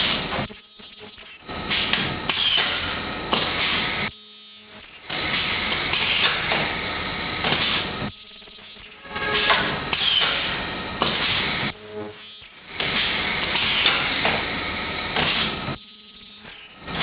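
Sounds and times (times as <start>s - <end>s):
plastic welding machine noise: 0.0s - 17.0s
sharp mechanical knocks: 1.7s - 3.8s, 9.4s - 11.5s, 12.8s - 14.5s.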